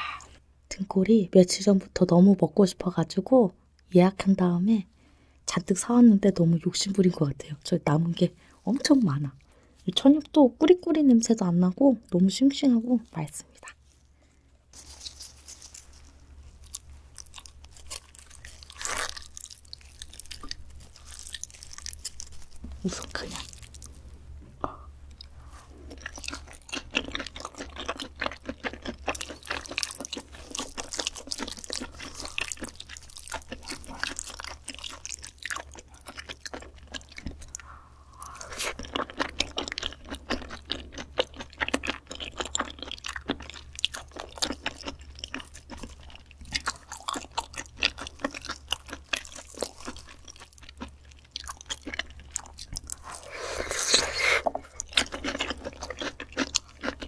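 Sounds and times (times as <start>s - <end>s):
person chewing with mouth clicks: 23.4s - 57.0s.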